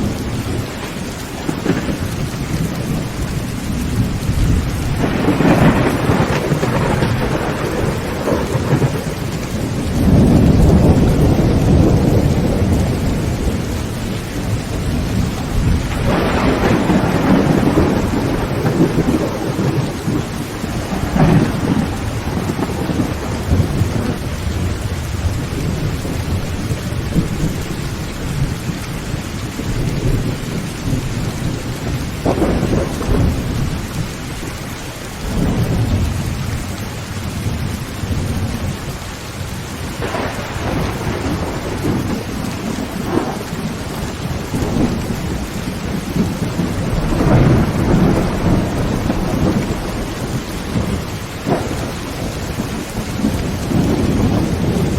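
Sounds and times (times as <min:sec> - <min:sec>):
heavy rain on a tin roof: 0:00.0 - 0:54.9
low thunder rumbles: 0:00.0 - 0:54.9
sharp thunder cracks: 0:01.4 - 0:02.3, 0:04.0 - 0:13.8, 0:14.7 - 0:27.6, 0:32.2 - 0:33.8, 0:40.0 - 0:54.9.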